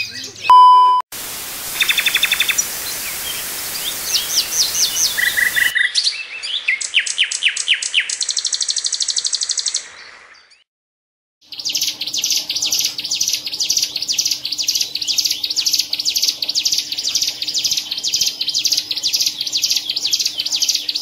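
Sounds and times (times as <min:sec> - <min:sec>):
steady hiss: 0:01.2 - 0:05.7
bird singing rapid chips and trill: 0:01.8 - 0:10.6, 0:11.4 - 0:21.0.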